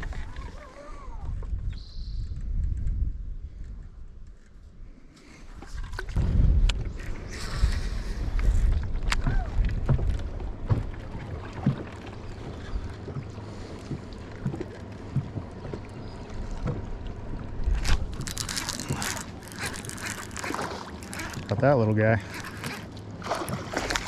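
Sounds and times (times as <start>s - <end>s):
wind rumble on microphone: 0.0s - 20.4s
splashing and rattling: 6.8s - 24.0s.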